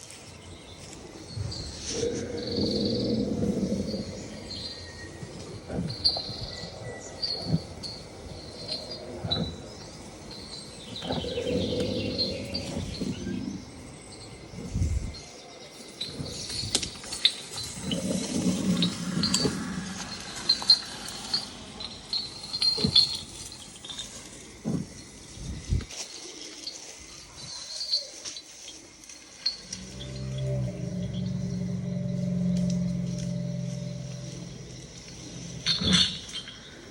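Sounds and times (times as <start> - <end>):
insects chirping: 0.0 - 36.9
low rumbling: 1.2 - 15.2, 17.6 - 23.1, 29.6 - 36.9.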